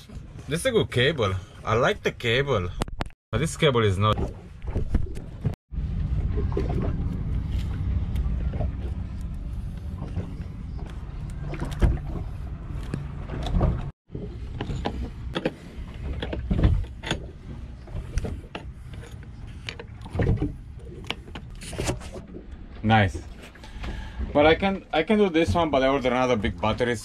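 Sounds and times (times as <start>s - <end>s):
steady low rumble: 5.4s - 21.6s.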